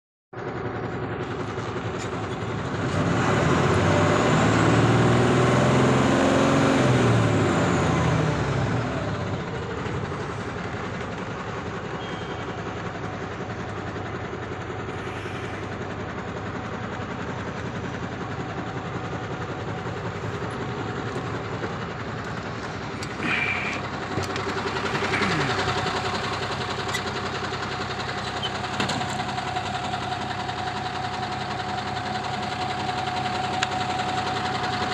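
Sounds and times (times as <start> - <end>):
diesel truck engine idling: 0.4 - 34.9
louder engine passing: 2.8 - 9.4, 22.2 - 26.6.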